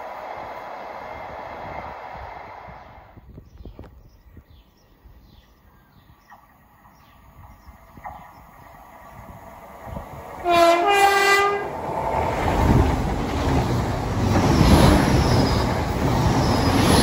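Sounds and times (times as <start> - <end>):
train running on rails: 0.0 - 17.0
birds chirping: 3.2 - 10.4.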